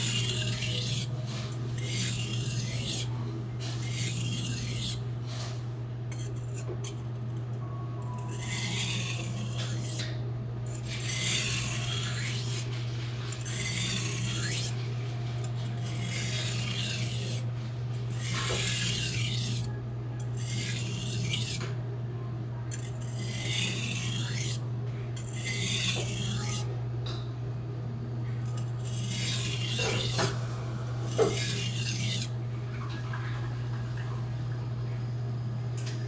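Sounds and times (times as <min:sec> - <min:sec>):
knife grinding on whetstone: 0:00.0 - 0:07.0, 0:08.0 - 0:21.8, 0:22.7 - 0:24.6, 0:25.2 - 0:26.7, 0:28.4 - 0:32.4
steady low hum: 0:00.0 - 0:36.0.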